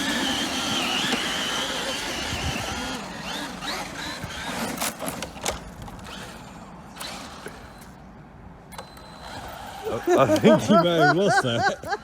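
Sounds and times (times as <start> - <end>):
electric motor whining: 0.0 - 5.3.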